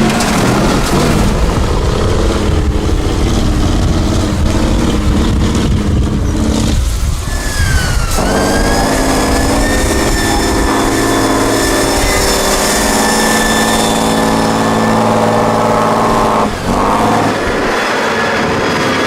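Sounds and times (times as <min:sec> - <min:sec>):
vehicle engine running: 0:00.0 - 0:19.0
thin high whine: 0:05.8 - 0:18.4.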